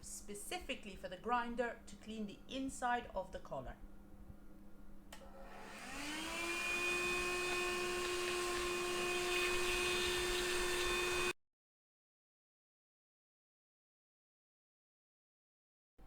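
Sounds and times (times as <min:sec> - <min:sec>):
vacuum cleaner switch click: 0:05.1 - 0:05.3
vacuum cleaner motor whine: 0:05.2 - 0:11.4.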